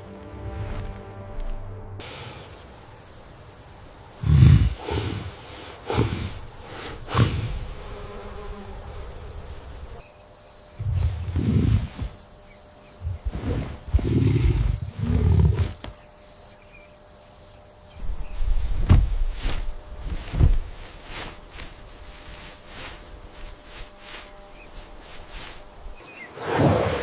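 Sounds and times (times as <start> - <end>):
large animal growling: 13.0 - 15.8.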